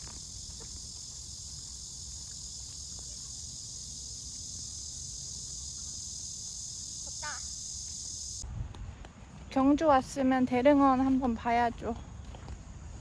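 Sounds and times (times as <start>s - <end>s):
high-pitched insect chorus: 0.0s - 8.5s.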